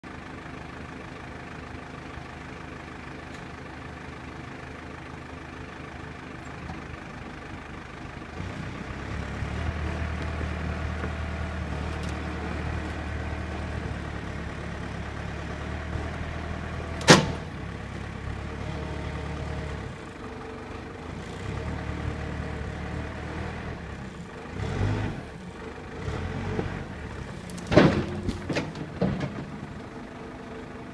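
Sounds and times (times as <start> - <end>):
diesel engine running: 0.0 - 30.9
sharp cracks and thumps: 27.5 - 29.5.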